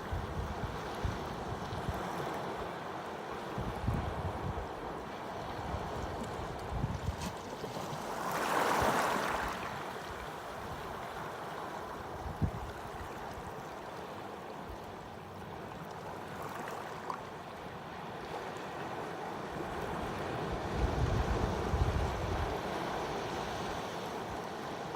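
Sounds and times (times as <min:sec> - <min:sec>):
ocean waves washing: 0:07.3 - 0:12.2.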